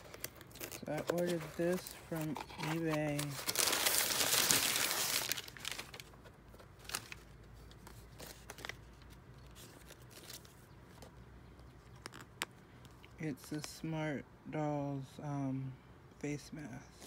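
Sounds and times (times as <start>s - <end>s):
packaging crinkling and rustling: 0.0s - 11.2s.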